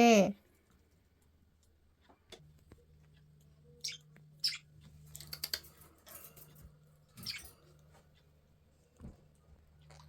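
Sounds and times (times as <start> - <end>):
low steady hum: 0.0 - 10.0
budgerigars chirping: 3.8 - 4.7, 7.2 - 7.5.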